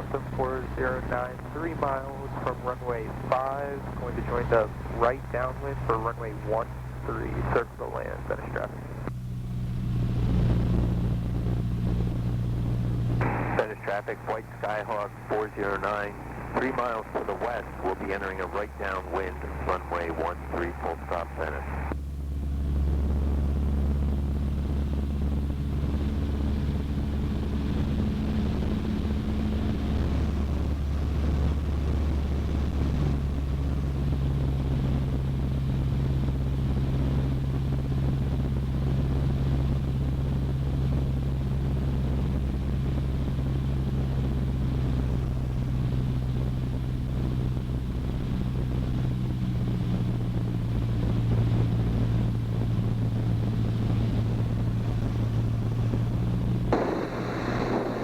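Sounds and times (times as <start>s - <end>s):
aircraft engine and propeller drone: 0.0s - 58.0s.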